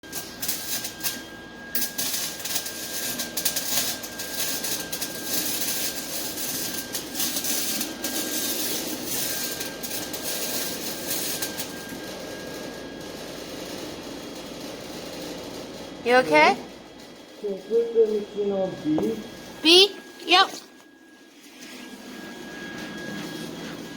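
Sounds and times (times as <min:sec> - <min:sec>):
arc welding crackle and sizzle: 0:00.0 - 0:23.9
faint high tone: 0:17.4 - 0:20.8.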